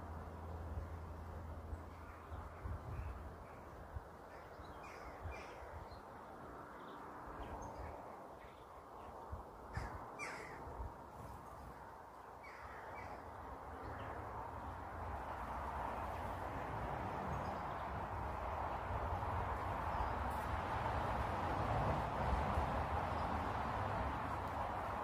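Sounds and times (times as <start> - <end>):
loud bird calls: 9.7 - 10.6.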